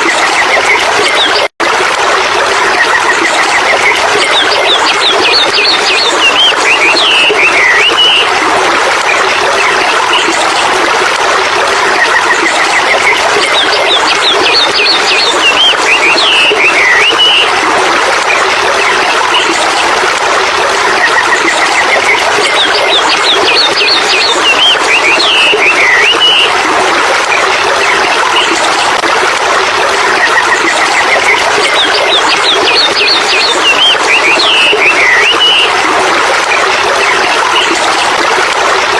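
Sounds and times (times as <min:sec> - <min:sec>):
small birds chirping and trilling: 0:03.5 - 0:08.3, 0:12.1 - 0:17.5, 0:21.4 - 0:26.5, 0:30.3 - 0:35.8.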